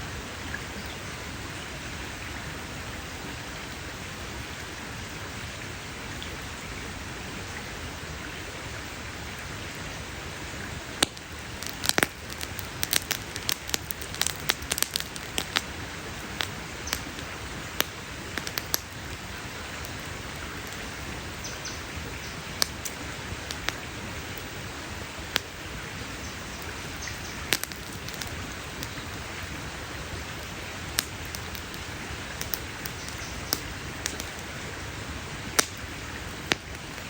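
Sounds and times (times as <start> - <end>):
campfire crackling: 8.9 - 37.0
sharp pops and snaps: 11.0 - 24.5, 25.2 - 29.2, 30.4 - 34.6, 35.5 - 37.0.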